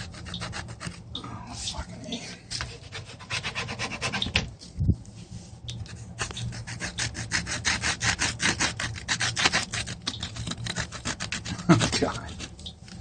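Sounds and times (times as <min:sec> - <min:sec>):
pen scribbling on filter: 0:00.0 - 0:01.0, 0:06.2 - 0:12.7.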